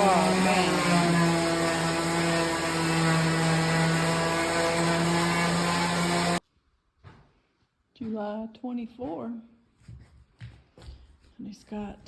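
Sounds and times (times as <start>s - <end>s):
electric palm sander humming: 0.0s - 6.4s.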